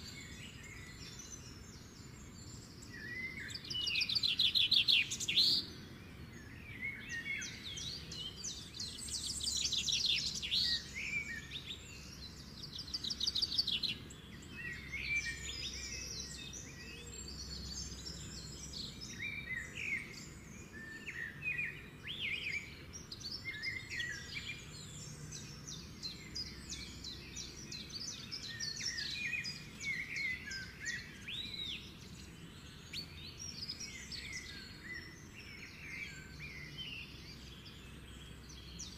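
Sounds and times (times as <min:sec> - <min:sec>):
small birds chirping and trilling: 0:00.0 - 0:38.9.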